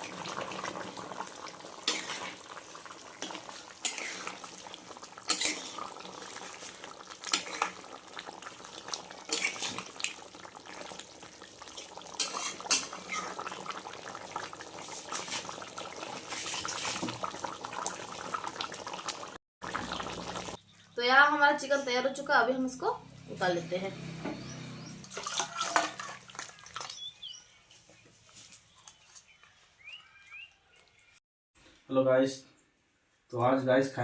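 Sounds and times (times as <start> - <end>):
curry bubbling: 0.0 - 20.6, 25.0 - 27.2
metal spoon scraping a pan: 1.8 - 2.4, 3.2 - 4.4, 5.3 - 5.9, 7.3 - 7.8, 9.2 - 9.9, 12.2 - 13.4, 25.2 - 26.2.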